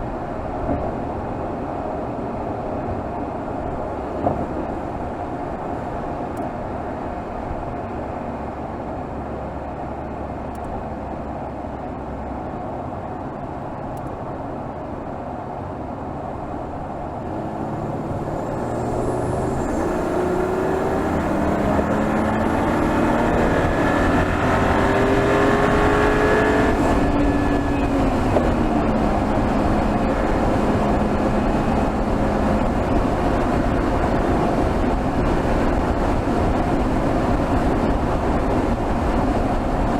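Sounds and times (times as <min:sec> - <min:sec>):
car engine accelerating: 0:17.0 - 0:39.9.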